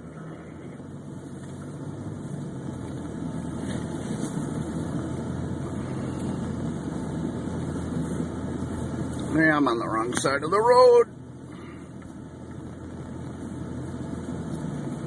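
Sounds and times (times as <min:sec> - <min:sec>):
car engine running: 0:00.0 - 0:15.0
road noise: 0:00.0 - 0:15.0.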